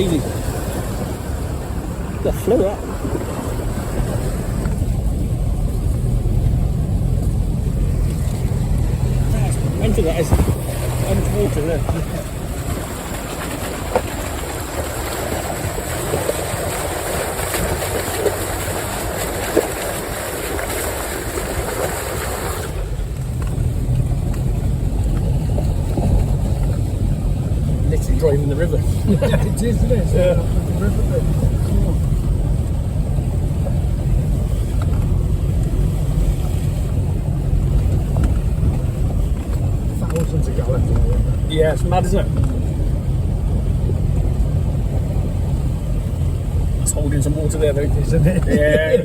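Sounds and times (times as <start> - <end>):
floodwater rushing: 0.0 - 49.0
vehicle engine running: 0.0 - 49.0
small knocks and splashes: 10.2 - 27.2.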